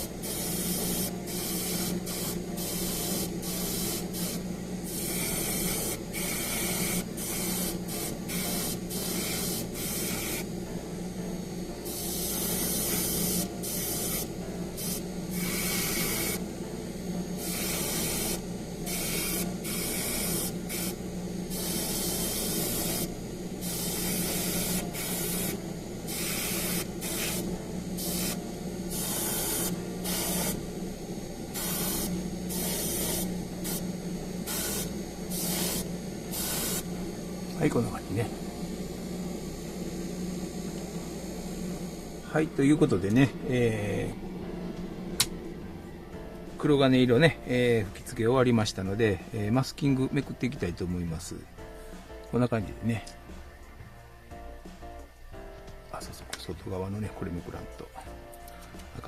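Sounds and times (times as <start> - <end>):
paint spray hissing: 0.0 - 10.5, 11.8 - 16.4, 17.4 - 30.7, 31.5 - 37.0
steady low hum: 0.0 - 59.0.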